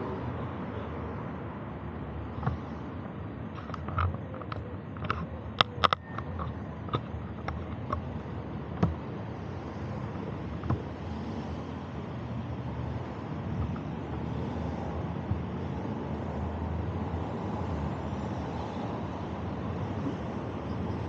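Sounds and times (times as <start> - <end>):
road noise: 0.0 - 21.0
sharp clicks and knocks: 2.3 - 9.2, 10.5 - 10.9.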